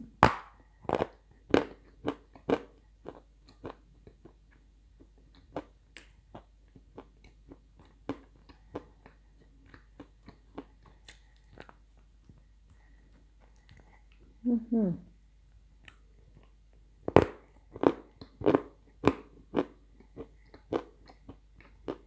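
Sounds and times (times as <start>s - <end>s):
crunchy chewing close up: 0.8s - 4.4s, 17.1s - 22.0s.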